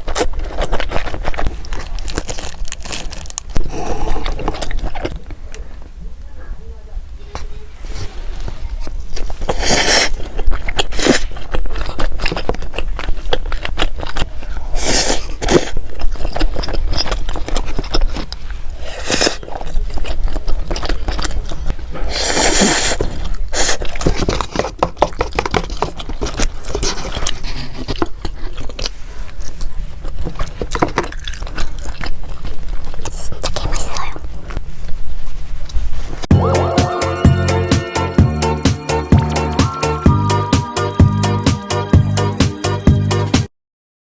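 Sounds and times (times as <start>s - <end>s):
crunchy bite: 0.0s - 5.6s, 9.1s - 34.3s
biting and chewing: 0.0s - 5.8s, 8.7s - 35.0s.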